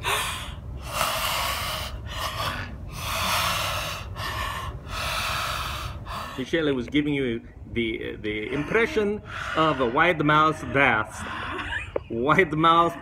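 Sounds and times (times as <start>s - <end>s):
woman breathing deeply: 0.0s - 6.5s, 8.5s - 11.7s.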